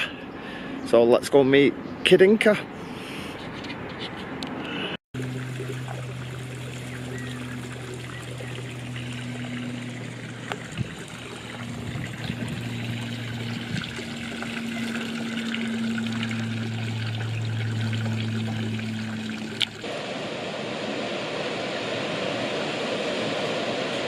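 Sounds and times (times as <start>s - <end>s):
low hum: 5.2s - 24.0s
rushing air and tyre noise: 19.8s - 24.0s.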